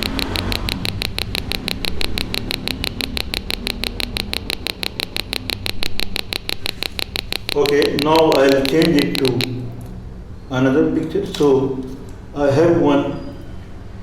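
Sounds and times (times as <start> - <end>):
high-pitched electronic chirps: 0.0 - 9.6.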